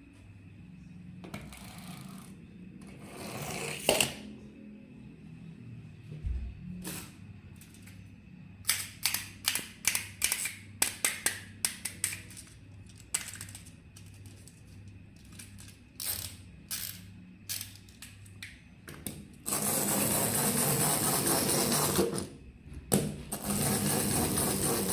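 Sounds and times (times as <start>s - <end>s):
plastic toy clicks and snaps: 8.6s - 13.7s
toy motor whirring: 16.0s - 17.8s, 19.4s - 22.3s, 23.4s - 24.9s.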